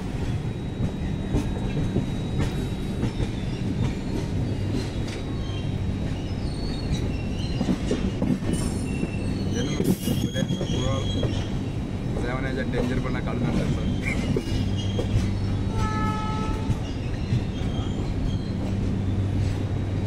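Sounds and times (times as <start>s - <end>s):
train rumbling on rails: 0.0s - 20.0s
wheel squeals: 1.0s - 11.7s, 13.6s - 19.7s.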